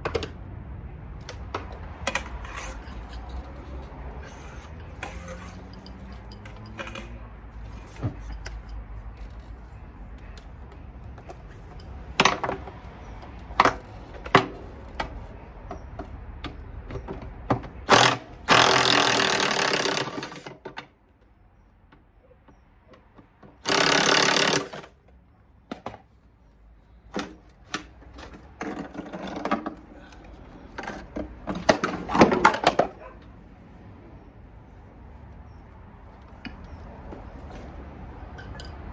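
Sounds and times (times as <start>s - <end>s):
power tool bursts: 17.9s - 20.5s, 23.6s - 24.9s.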